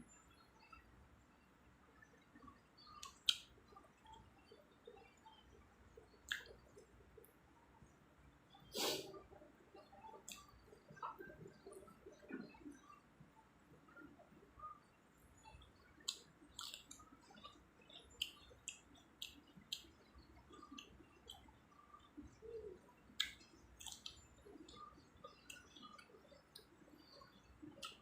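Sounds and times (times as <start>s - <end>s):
soft chewing: 2.0s - 28.0s
wet mouth clicks and smacks: 2.8s - 4.2s, 6.0s - 6.6s, 10.2s - 12.5s, 16.0s - 19.9s, 23.1s - 28.0s.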